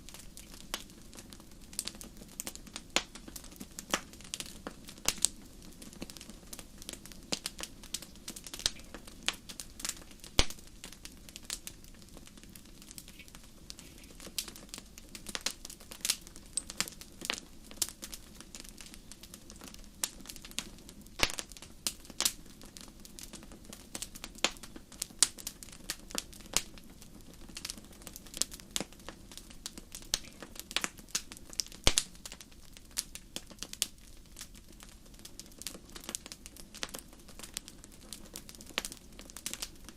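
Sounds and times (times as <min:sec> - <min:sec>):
wood fire crackling: 0:00.0 - 0:39.9
sharp pops and snaps: 0:06.8 - 0:11.0, 0:20.1 - 0:21.6, 0:29.6 - 0:34.6.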